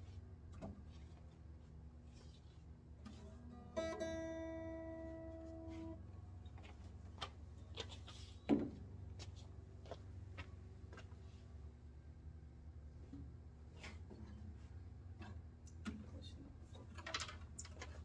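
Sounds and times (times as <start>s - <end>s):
guitar chord strummed: 3.8s - 5.9s.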